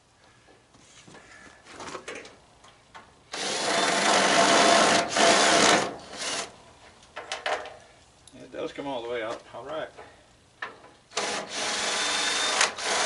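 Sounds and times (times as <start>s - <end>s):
power drill running: 3.3s - 6.5s, 11.1s - 13.0s.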